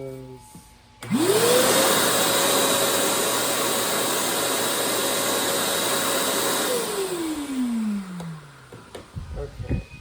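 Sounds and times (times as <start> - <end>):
stick vacuum motor whining: 1.0 - 9.3.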